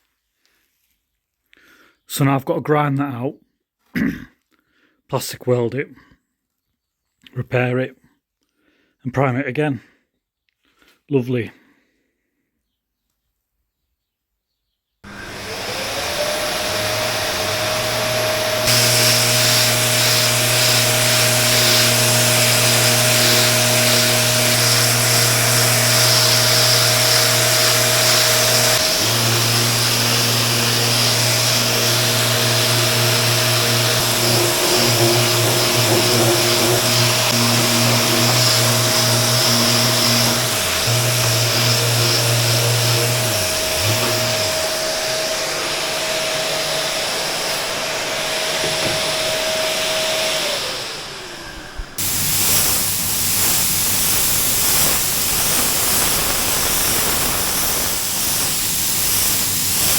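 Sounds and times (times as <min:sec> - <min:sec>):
power tool motor whining: 0:15.1 - 0:59.9.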